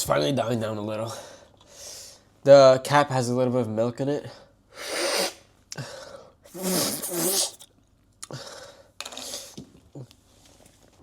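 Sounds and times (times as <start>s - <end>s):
man breathing heavily: 5.7s - 6.4s, 8.3s - 8.9s.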